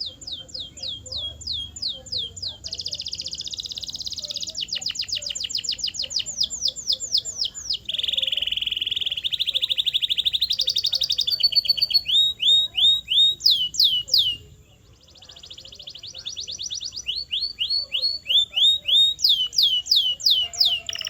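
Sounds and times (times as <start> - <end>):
canary singing trills: 0.0 - 21.0.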